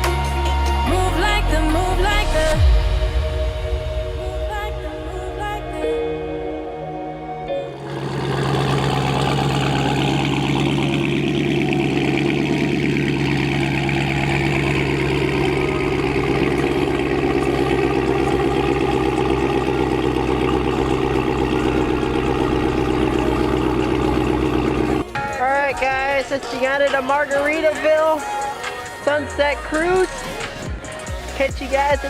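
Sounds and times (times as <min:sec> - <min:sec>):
car engine idling: 0:07.7 - 0:32.0.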